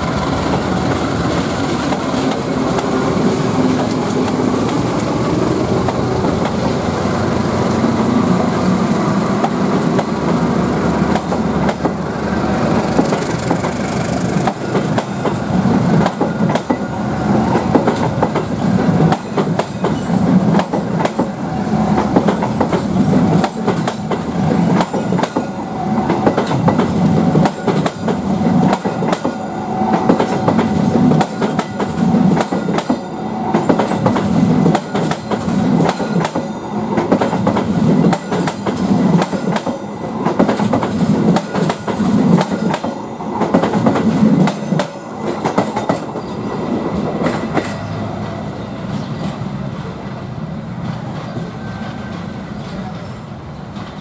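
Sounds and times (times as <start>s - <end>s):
train rumble: 0.0s - 54.0s
train wheels clattering over joints: 12.8s - 48.0s.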